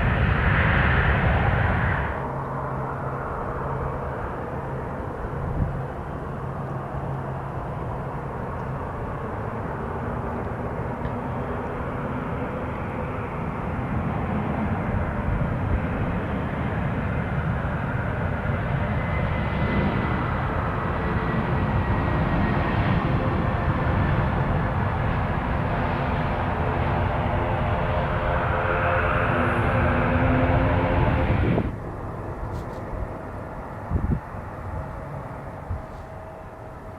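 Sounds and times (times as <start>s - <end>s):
airliner engines rumbling: 0.0s - 36.9s
faint high whine: 16.4s - 36.9s.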